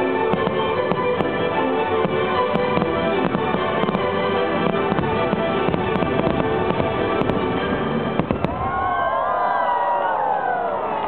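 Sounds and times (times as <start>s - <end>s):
music: 0.0s - 8.6s
fireworks cracking and popping: 0.3s - 8.9s.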